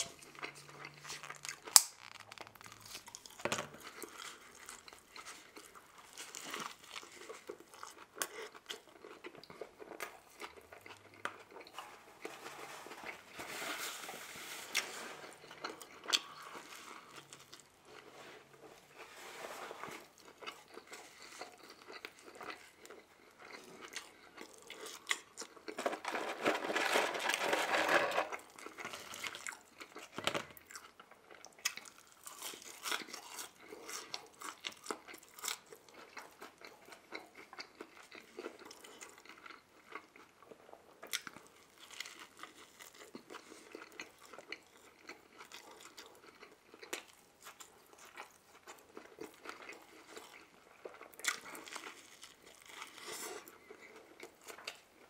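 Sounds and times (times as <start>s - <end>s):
burger being bitten and chewed: 0.2s - 11.8s.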